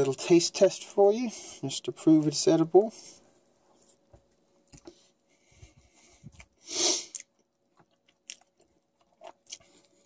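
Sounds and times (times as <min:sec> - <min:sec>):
quiet chewing with crunch: 0:03.4 - 0:10.0.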